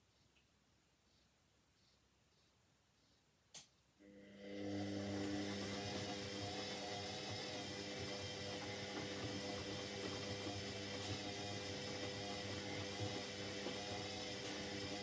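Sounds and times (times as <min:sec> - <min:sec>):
washing machine humming: 0:04.0 - 0:15.0.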